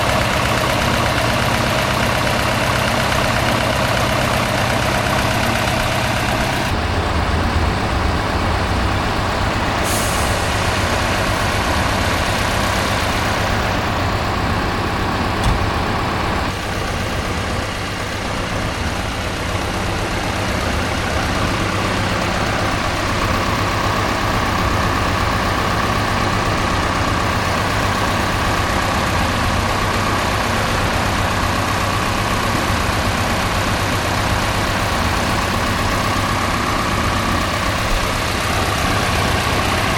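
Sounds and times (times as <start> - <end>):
diesel engine running: 0.0 - 39.9
steady whine: 1.5 - 29.7
air hiss: 9.6 - 13.8.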